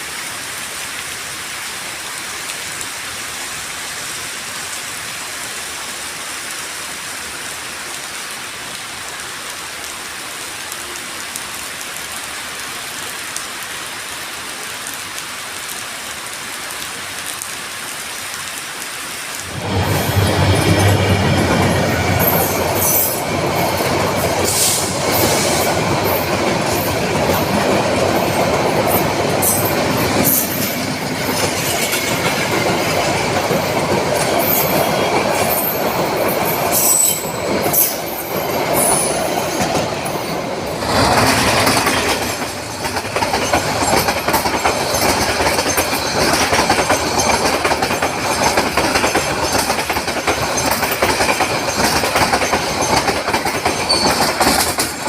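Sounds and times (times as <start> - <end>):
train running on rails: 0.0 - 55.0
wheel squeals: 34.4 - 40.4, 41.6 - 55.0.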